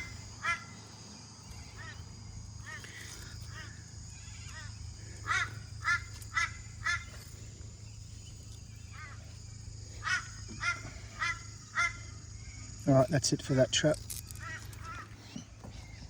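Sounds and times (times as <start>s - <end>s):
bird honking calls: 0.0s - 1.0s, 1.6s - 7.4s, 9.9s - 12.8s, 14.3s - 15.9s.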